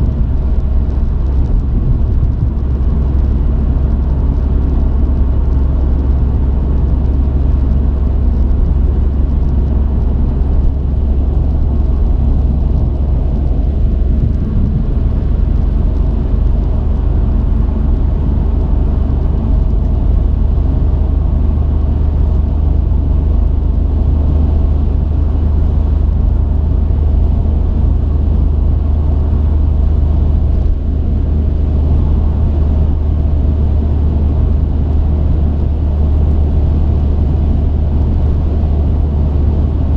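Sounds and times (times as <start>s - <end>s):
truck engine and road noise: 0.0s - 39.9s.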